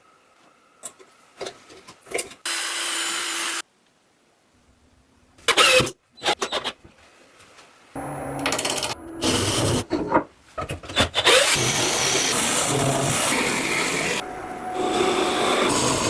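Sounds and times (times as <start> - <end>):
power tool cutting wood: 2.5 - 3.6, 11.2 - 16.0.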